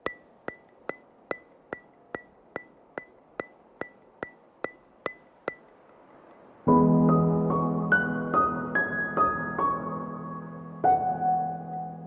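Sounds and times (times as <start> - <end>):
sharp ringing percussive ticks: 0.0 - 6.5.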